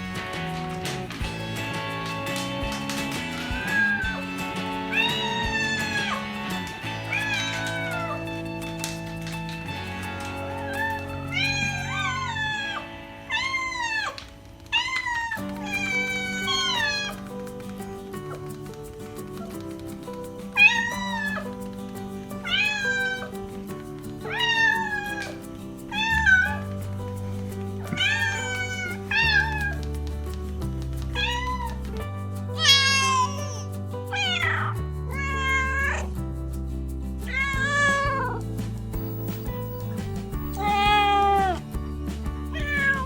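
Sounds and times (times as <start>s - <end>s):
background music with chords: 0.0s - 13.3s, 25.2s - 43.0s
cat meowing: 3.4s - 6.3s, 6.9s - 8.5s, 10.2s - 17.2s, 20.6s - 21.5s, 22.4s - 23.3s, 24.2s - 26.7s, 27.9s - 29.9s, 31.1s - 32.0s, 32.6s - 36.1s, 37.3s - 38.4s, 39.0s - 41.9s, 42.5s - 43.0s.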